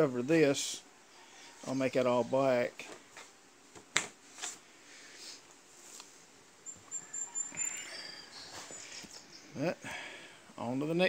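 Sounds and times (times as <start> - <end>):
faint background hiss: 0.0 - 11.0
high thin bird chirps: 6.6 - 9.6.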